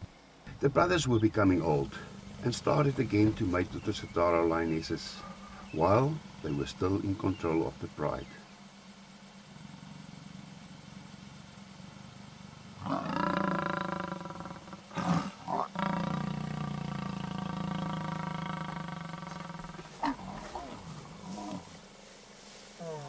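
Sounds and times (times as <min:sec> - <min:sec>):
lions growling and snarling: 0:01.6 - 0:06.3, 0:12.8 - 0:21.8.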